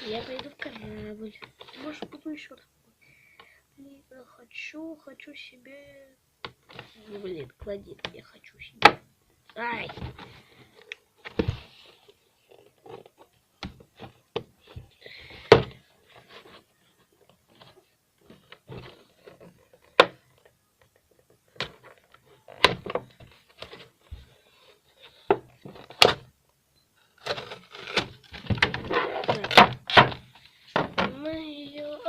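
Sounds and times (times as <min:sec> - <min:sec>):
cardboard and plastic packaging rustling: 0:00.0 - 0:02.4, 0:09.6 - 0:26.3, 0:27.0 - 0:32.0.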